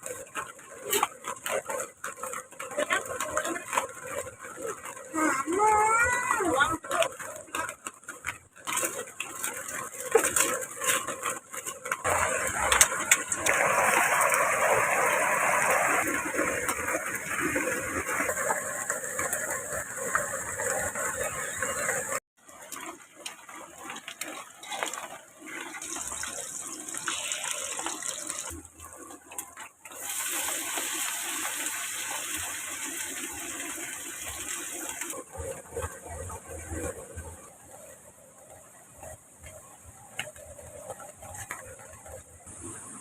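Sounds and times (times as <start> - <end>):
running water rushing: 12.0 - 38.1.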